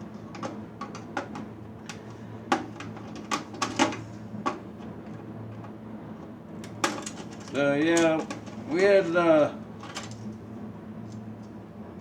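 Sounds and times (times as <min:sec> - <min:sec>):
clicks and clatter of small parts: 0:06.6 - 0:08.6, 0:09.8 - 0:10.3.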